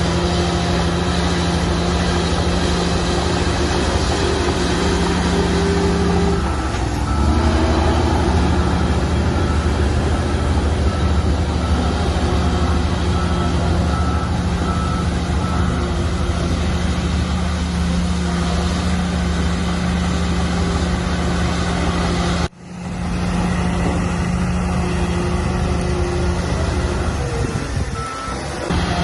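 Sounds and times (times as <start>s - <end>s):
heavy diesel earthmoving machinery: 0.0s - 29.0s
reversing alarm beeping: 3.4s - 17.2s, 26.5s - 29.0s.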